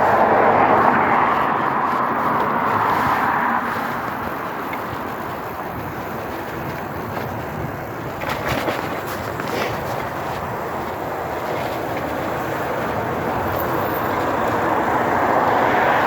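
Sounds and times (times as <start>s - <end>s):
vehicle passing by: 0.0s - 5.5s, 11.6s - 16.0s
road traffic rushing: 0.0s - 16.0s.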